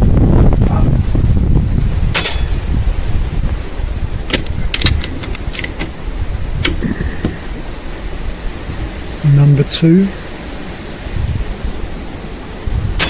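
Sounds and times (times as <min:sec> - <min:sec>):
wind buffeting microphone: 0:00.0 - 0:09.6, 0:10.2 - 0:13.0
air rifle action clicking: 0:04.3 - 0:06.0, 0:06.6 - 0:07.4.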